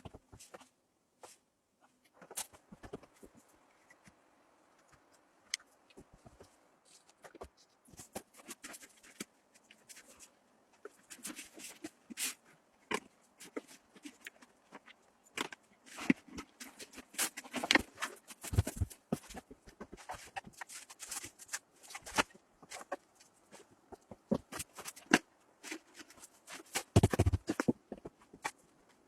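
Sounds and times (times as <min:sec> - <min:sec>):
clicks knocks and scrapes: 0:10.8 - 0:28.6.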